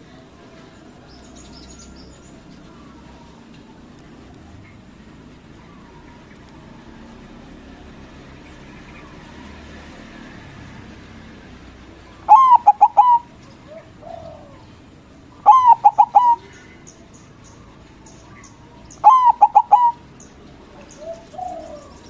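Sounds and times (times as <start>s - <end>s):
dove cooing: 12.1s - 16.9s, 17.7s - 22.0s.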